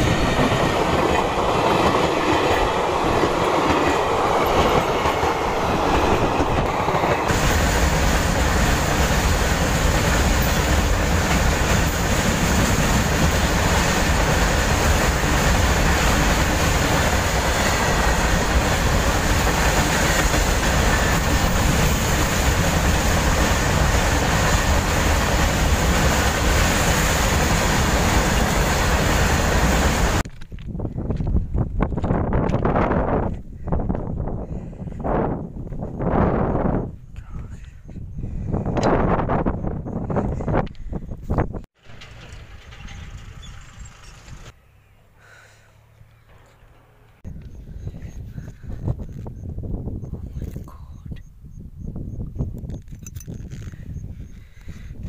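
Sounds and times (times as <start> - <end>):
train wheels rolling on rails: 0.0 - 34.1, 38.7 - 44.7.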